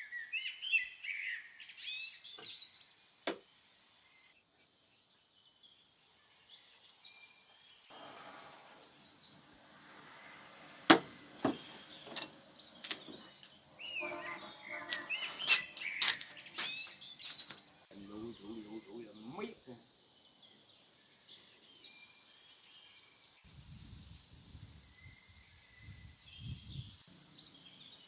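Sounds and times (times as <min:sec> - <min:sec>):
small birds chirping: 0:00.0 - 0:28.0
sharp knocks: 0:10.8 - 0:13.4.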